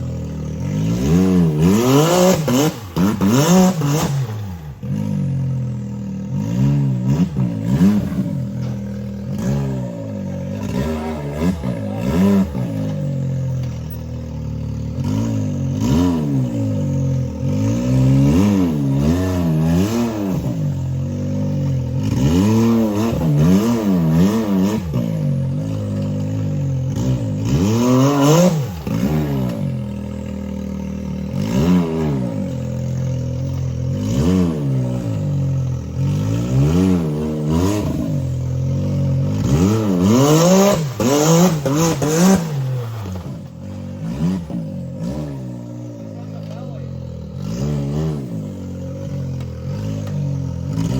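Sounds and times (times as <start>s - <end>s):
utility vehicle engine revving: 0.0s - 50.9s
vehicle clanking and scraping on rock: 7.0s - 18.2s, 48.9s - 50.9s.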